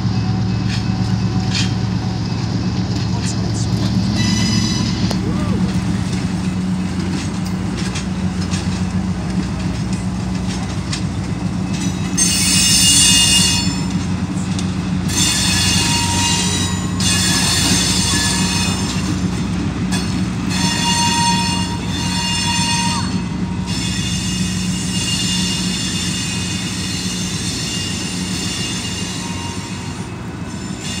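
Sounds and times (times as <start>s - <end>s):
train wheels squealing on rails: 0.0s - 5.8s, 9.8s - 31.0s.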